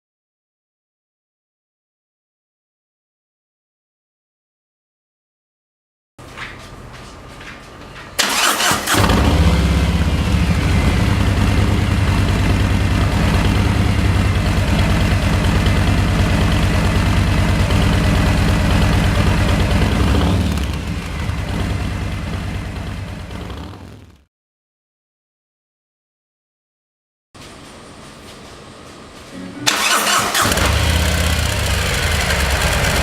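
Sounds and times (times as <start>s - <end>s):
motorcycle starter cranking: 8.2s - 21.6s, 29.7s - 33.0s
motorcycle engine idling: 8.4s - 24.0s, 29.7s - 33.0s.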